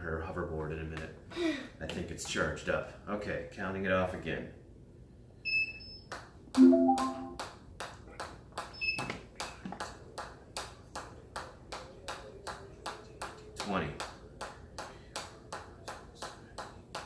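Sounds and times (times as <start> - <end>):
melodic chime: 6.6 - 7.4
short electronic beep: 6.6 - 7.4.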